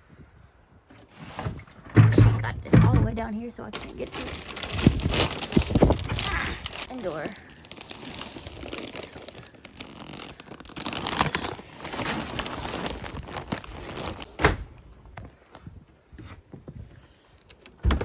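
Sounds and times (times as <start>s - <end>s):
rustling handling noise: 0.9s - 14.4s
loud thump: 1.9s - 3.3s.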